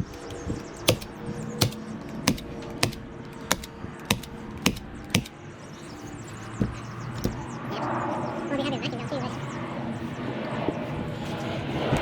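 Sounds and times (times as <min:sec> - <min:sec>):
staples driven into carpet: 0:00.0 - 0:05.3.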